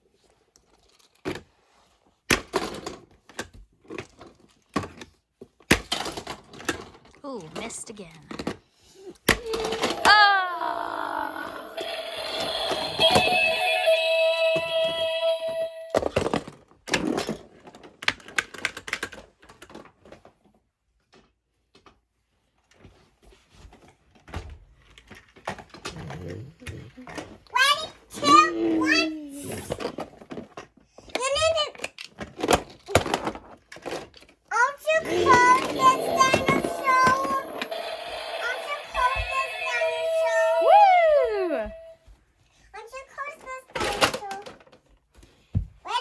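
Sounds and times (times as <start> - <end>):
toy trucks crashing on plastic: 2.3 - 7.1, 31.8 - 34.3
plastic toys clattering: 43.7 - 44.9.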